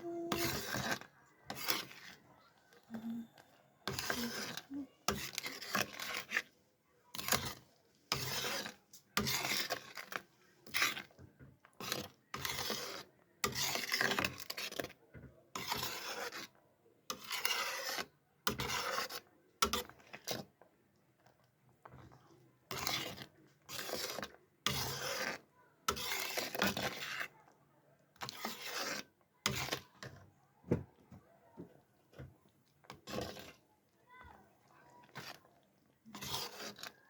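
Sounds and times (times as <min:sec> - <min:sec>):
rasping scrapes: 0:00.3 - 0:02.3, 0:03.8 - 0:06.5, 0:07.2 - 0:11.1, 0:15.6 - 0:16.5, 0:17.1 - 0:19.2, 0:22.7 - 0:27.3, 0:28.2 - 0:29.8, 0:33.0 - 0:33.6, 0:35.0 - 0:35.4, 0:36.1 - 0:37.0.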